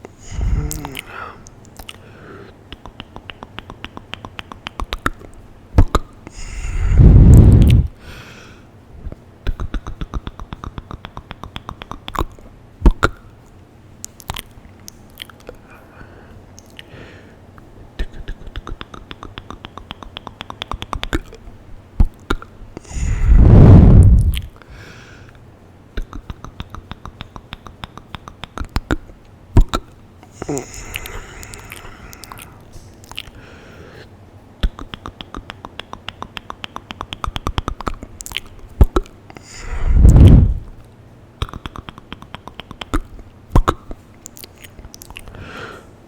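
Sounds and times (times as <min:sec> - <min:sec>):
wet mouth clicks and smacks: 0:00.0 - 0:02.0, 0:02.7 - 0:06.4, 0:07.1 - 0:07.9, 0:09.0 - 0:15.6, 0:16.5 - 0:16.9, 0:17.6 - 0:24.6, 0:26.0 - 0:33.4, 0:34.6 - 0:45.4
breath onto microphone: 0:06.3 - 0:08.7, 0:22.8 - 0:25.3, 0:39.4 - 0:40.7.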